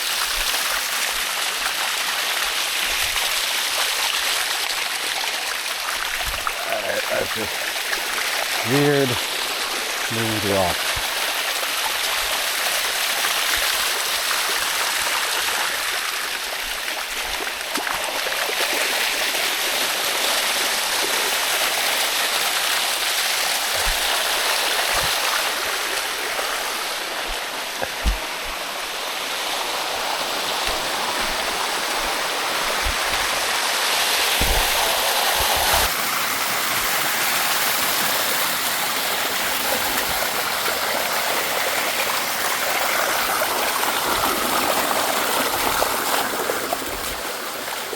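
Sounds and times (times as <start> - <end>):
waterfall rushing over rocks: 0.0 - 47.9
low thumps on microphone: 27.2 - 28.6.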